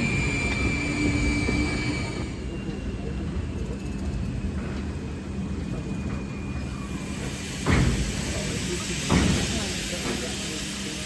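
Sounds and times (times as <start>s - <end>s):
steam locomotive rumble: 0.0s - 11.0s
steam hissing: 6.6s - 11.0s.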